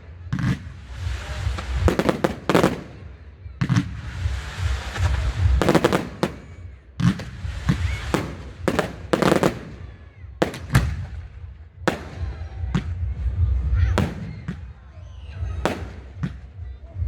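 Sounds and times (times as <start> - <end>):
fireworks crackle: 0.0 - 12.4
fireworks bangs: 0.0 - 14.8, 15.4 - 16.6.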